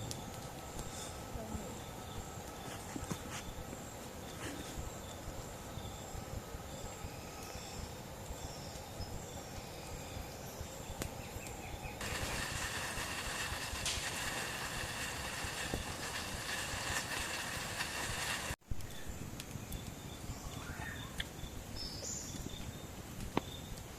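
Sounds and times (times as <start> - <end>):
steady low rumble: 0.0 - 18.6
insects calling: 0.0 - 19.0, 20.0 - 23.8
hissing insect drone: 11.6 - 18.6.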